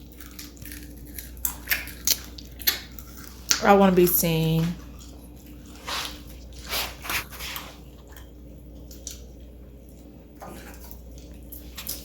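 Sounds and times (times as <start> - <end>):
biting fried chicken: 0.0 - 3.7
wet chewing: 0.0 - 3.8, 4.8 - 12.0.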